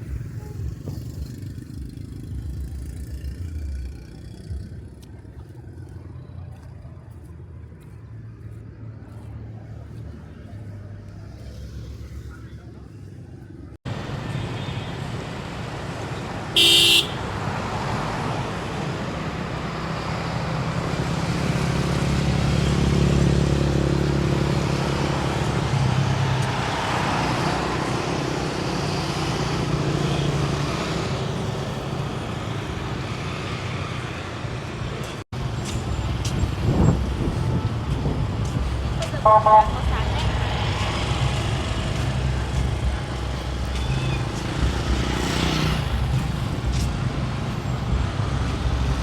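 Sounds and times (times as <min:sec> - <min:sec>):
road traffic: 0:00.0 - 0:49.0
vehicle passing: 0:15.3 - 0:49.0
car horn toot: 0:16.6 - 0:17.3, 0:39.2 - 0:40.0.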